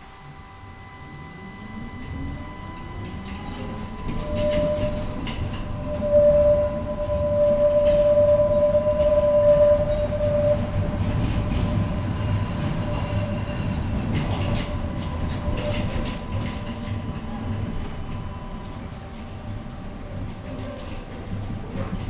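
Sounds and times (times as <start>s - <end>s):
high whine: 0.0s - 20.5s
tram wheels rumbling on rails: 0.6s - 22.0s
rail joint clicks and knocks: 2.8s - 19.4s.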